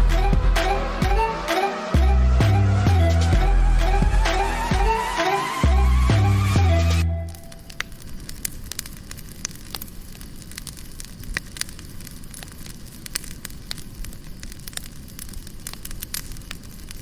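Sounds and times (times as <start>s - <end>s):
wood fire crackling in a stove: 7.3s - 17.0s.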